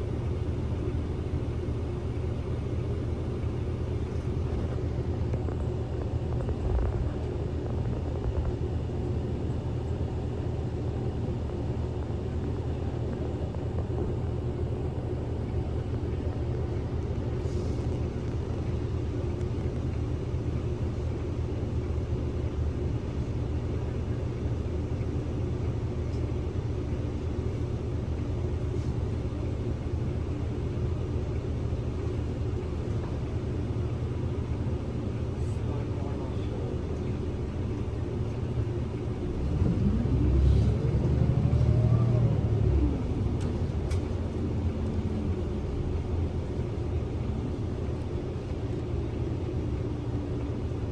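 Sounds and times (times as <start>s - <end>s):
bus engine hum and road rumble: 0.0s - 50.9s.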